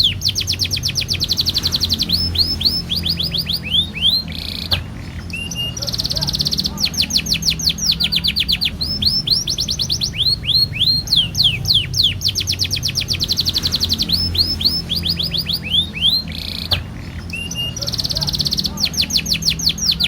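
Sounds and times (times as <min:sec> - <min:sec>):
canary singing: 0:00.0 - 0:20.0.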